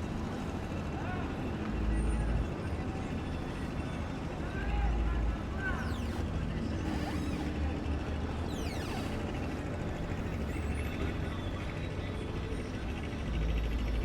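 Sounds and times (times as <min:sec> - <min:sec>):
whistle-like calls: 0:08.5 - 0:09.2.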